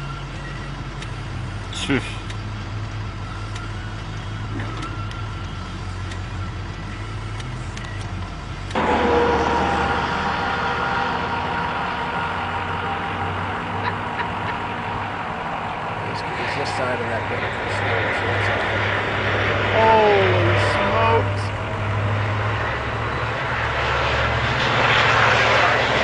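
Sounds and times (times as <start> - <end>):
low engine drone: 0.0 - 26.0
rush of noise: 8.7 - 26.0
steady held tones: 8.8 - 16.8.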